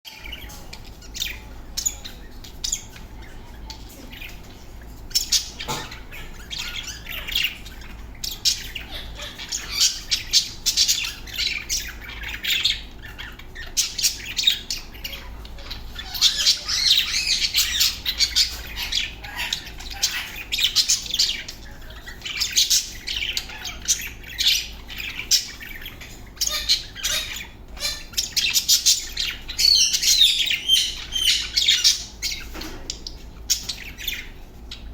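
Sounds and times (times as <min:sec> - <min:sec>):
budgerigars chattering and warbling: 0:00.1 - 0:34.9.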